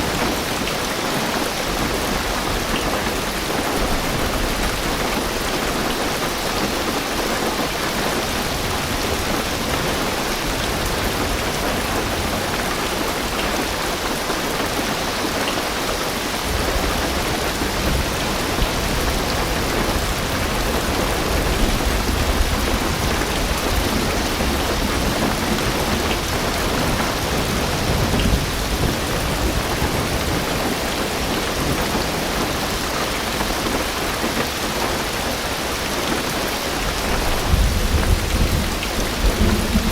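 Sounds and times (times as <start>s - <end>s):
heavy rain on car roof: 0.0s - 39.9s
low rumble of thunder: 16.4s - 33.8s, 36.9s - 39.9s.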